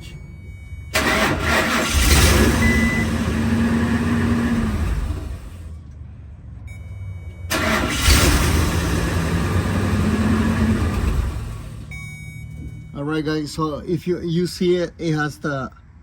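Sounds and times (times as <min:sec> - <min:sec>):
engine starter cranking: 0:00.9 - 0:05.6, 0:07.5 - 0:12.0.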